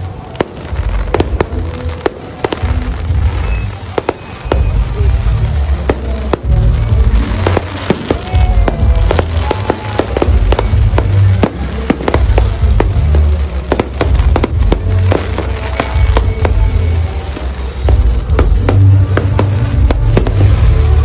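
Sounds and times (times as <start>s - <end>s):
fireworks bangs and crackles: 0.0s - 21.0s
loud music with heavy bass: 4.4s - 21.0s.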